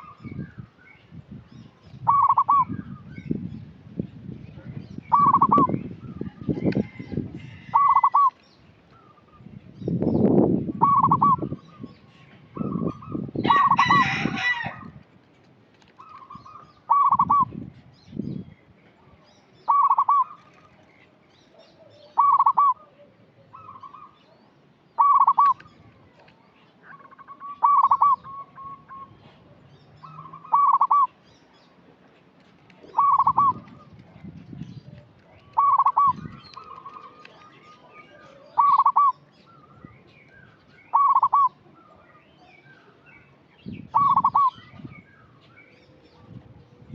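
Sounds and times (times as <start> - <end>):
dove cooing: 2.0 - 2.8, 5.1 - 5.8, 7.6 - 8.4, 10.8 - 11.8, 16.0 - 17.5, 19.7 - 20.6, 21.7 - 24.2, 25.0 - 25.7, 26.9 - 29.3, 30.0 - 31.2, 32.8 - 34.1, 35.4 - 39.7, 40.9 - 41.8, 43.9 - 44.9.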